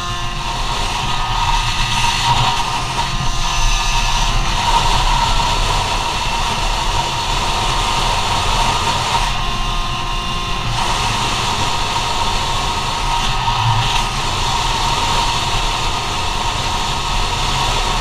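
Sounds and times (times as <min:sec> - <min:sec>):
scooter engine buzzing: 0:00.0 - 0:18.0.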